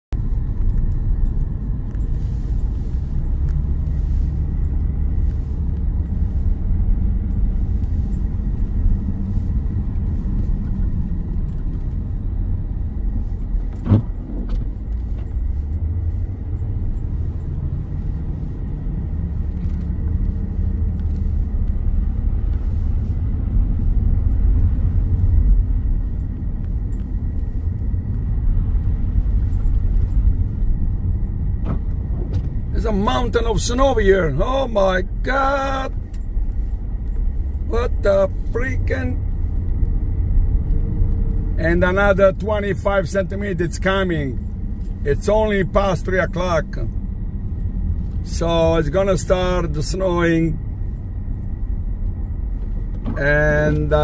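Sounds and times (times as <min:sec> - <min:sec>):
car driving rumble: 0:00.0 - 0:54.0.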